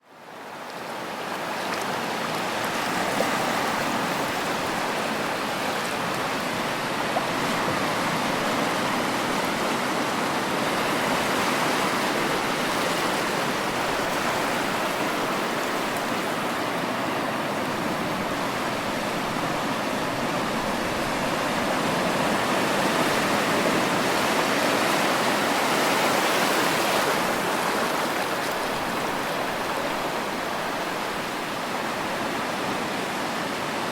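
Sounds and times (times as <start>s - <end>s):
ocean waves washing: 1.4s - 33.9s.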